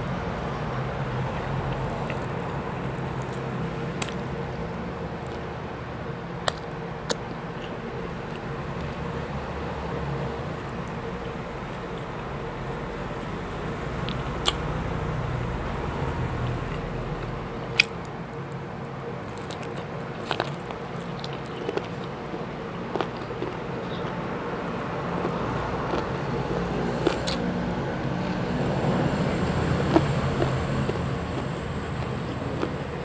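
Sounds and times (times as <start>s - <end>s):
steady low hum: 0.0s - 33.0s
person chewing food: 1.3s - 5.4s, 14.0s - 14.8s, 16.0s - 33.0s.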